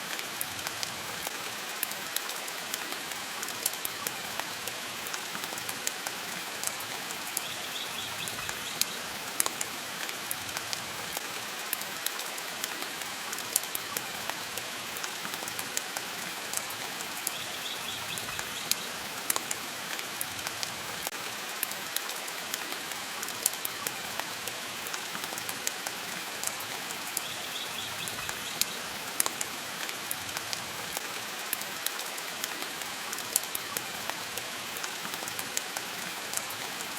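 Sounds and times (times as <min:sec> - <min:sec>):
rain hissing: 0:00.0 - 0:36.9
wood fire crackling: 0:00.0 - 0:36.9.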